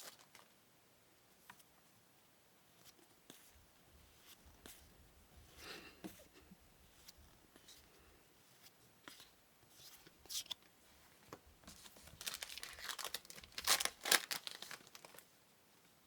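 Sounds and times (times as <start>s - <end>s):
card pack wrapper crinkling: 0.0s - 0.5s, 11.8s - 15.2s.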